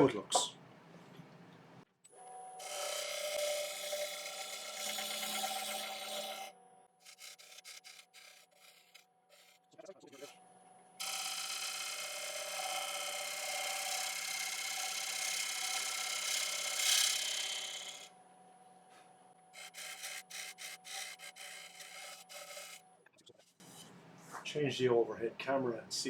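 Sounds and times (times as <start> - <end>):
lathe motor humming: 2.6 - 6.5, 7.1 - 9.6, 11.0 - 18.1, 19.6 - 22.8
gouge cutting wood on lathe: 2.6 - 10.3, 11.0 - 18.1, 19.6 - 22.8.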